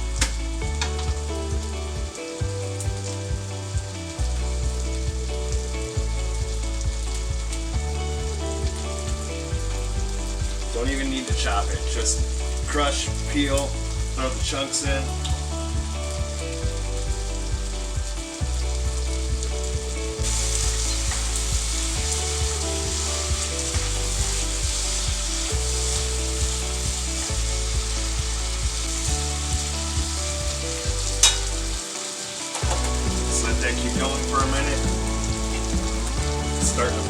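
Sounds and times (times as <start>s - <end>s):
vegetables sizzling in hot oil: 19.6s - 37.0s.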